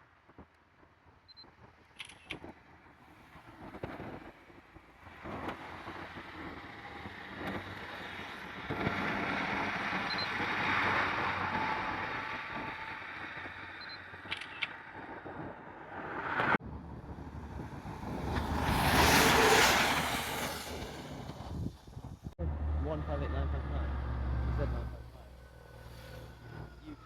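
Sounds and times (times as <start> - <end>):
camera beep: 2.0 - 2.4, 13.8 - 14.8
camera shutter clicks: 2.0 - 2.4, 14.3 - 14.7
train passing: 15.8 - 27.0.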